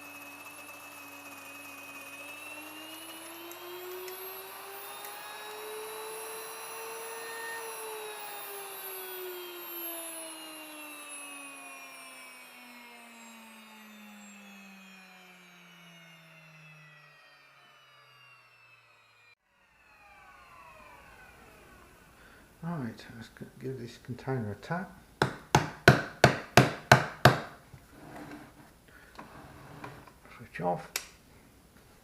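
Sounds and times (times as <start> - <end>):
grain mill motor whine: 0.0 - 22.8.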